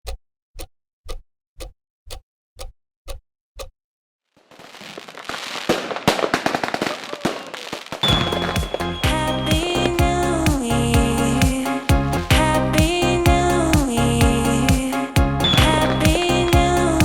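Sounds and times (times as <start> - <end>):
clock ticking: 0.0 - 3.7
fireworks crackling and popping: 4.4 - 10.0
music: 8.0 - 17.0.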